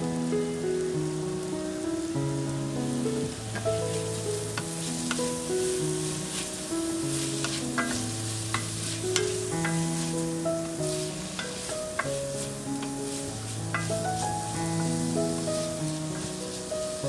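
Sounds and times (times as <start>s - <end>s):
food sizzling in a pan: 0.0s - 17.0s
soft background music: 0.0s - 17.0s
utensil clicking against pan: 3.5s - 17.0s.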